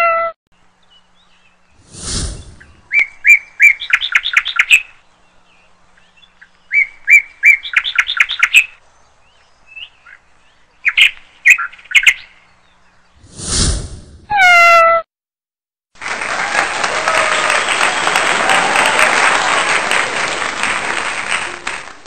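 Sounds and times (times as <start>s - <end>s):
songbird singing with trill: 0.6s - 1.8s, 2.6s - 13.2s
brief whooshing: 1.8s - 2.9s, 13.2s - 14.3s.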